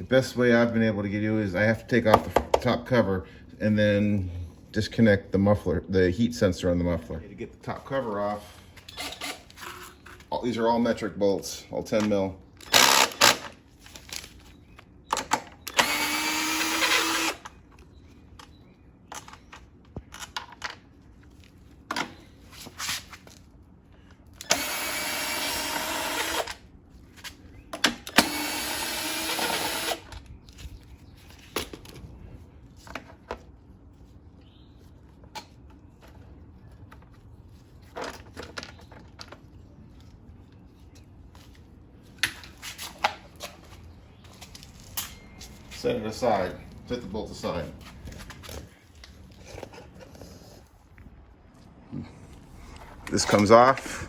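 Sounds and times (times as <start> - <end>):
cordless drill spinning out bolts: 12.6 - 13.6, 15.7 - 17.5, 24.4 - 26.6, 28.1 - 30.1.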